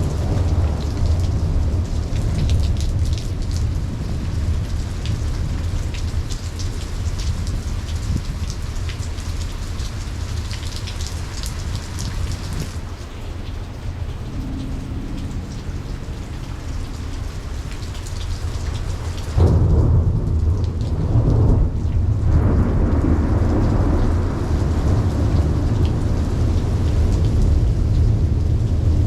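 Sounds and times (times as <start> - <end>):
rain falling: 0.0 - 29.0
thunder clap and rumble: 0.0 - 29.0.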